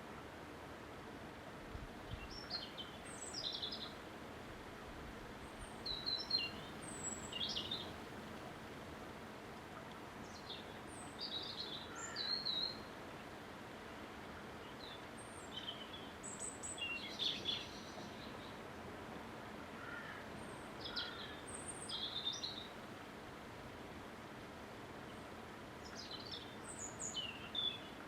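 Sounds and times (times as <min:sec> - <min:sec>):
steady background hiss: 0:00.0 - 0:28.0
songbird chirping: 0:02.1 - 0:04.0, 0:05.4 - 0:08.7, 0:09.7 - 0:12.9, 0:14.4 - 0:18.7, 0:19.8 - 0:22.8, 0:25.0 - 0:28.0.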